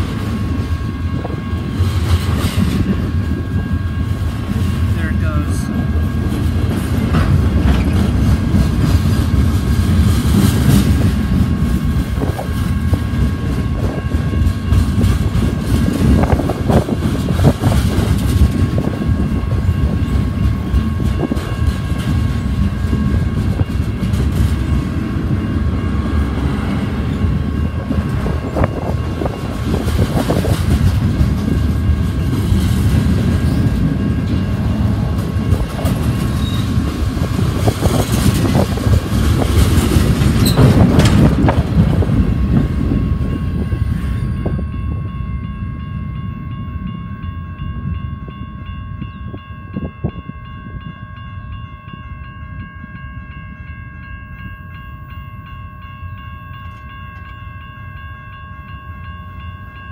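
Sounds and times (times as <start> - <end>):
freight train wheels rumbling: 0.0 - 59.9
wheels clanking over rail joints: 6.2 - 43.4.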